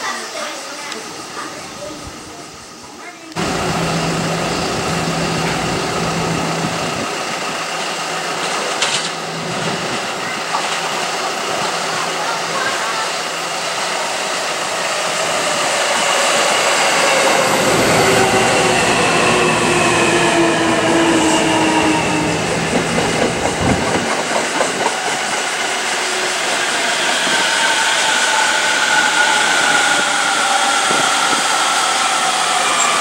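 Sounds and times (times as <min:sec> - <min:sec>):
electric train motor whine: 0:03.4 - 0:09.7.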